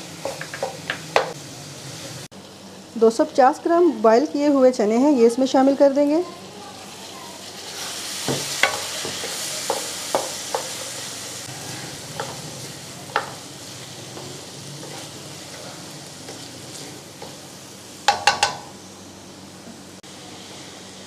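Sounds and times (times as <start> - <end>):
chickpeas sizzling in oil: 0.0 - 21.0
wooden spoon knocking pot: 0.2 - 1.3, 18.1 - 18.7.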